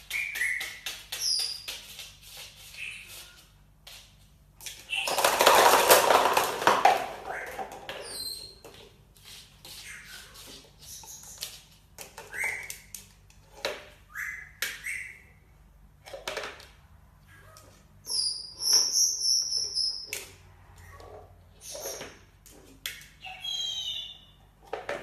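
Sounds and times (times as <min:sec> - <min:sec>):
parrot high whistle: 0:23.2 - 0:24.3
parrot chirping: 0:23.2 - 0:24.4.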